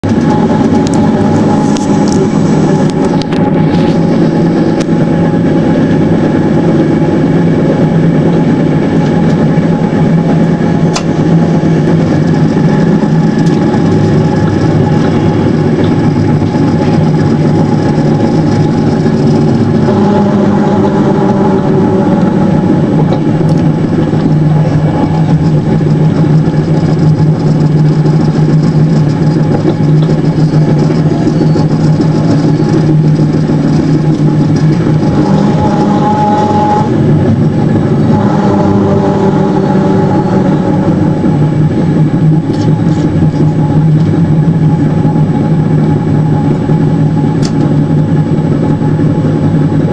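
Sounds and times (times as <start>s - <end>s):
sharp click of train: 0.0s - 4.1s, 4.7s - 5.0s, 8.3s - 9.5s, 10.8s - 11.3s, 12.1s - 20.2s, 21.8s - 36.9s, 42.4s - 44.2s, 47.2s - 47.9s
train rolling drone: 0.0s - 49.9s.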